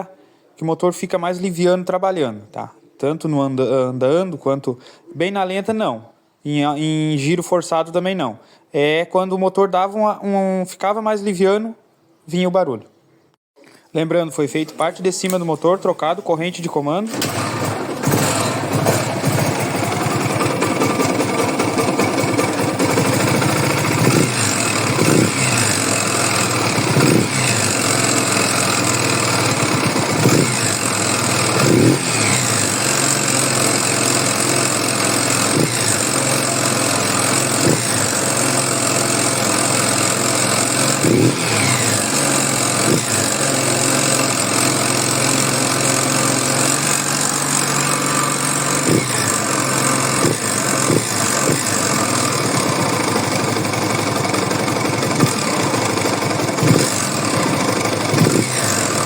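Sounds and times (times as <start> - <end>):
mechanical engine noise: 17.1 - 59.0
motorcycle engine revving: 17.1 - 59.0.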